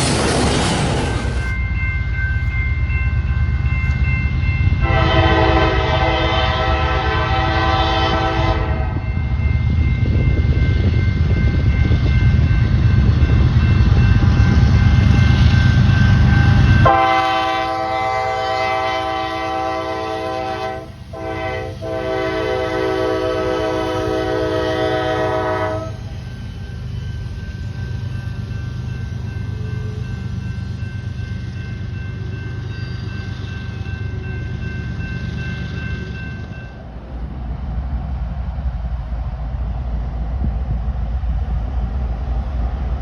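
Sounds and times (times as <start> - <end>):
train rumbling past: 0.0 - 43.0
train horn blast: 4.8 - 9.0, 16.8 - 26.1.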